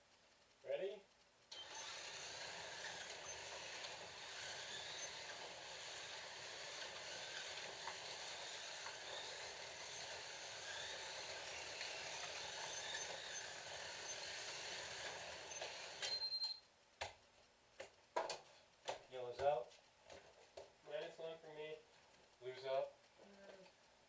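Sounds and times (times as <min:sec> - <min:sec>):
slot cars motor whine: 0:01.5 - 0:16.6.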